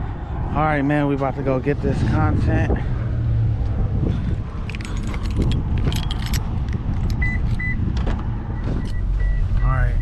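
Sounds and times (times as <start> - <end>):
low vehicle rumble: 0.0 - 10.0
keys jangling: 4.6 - 7.6.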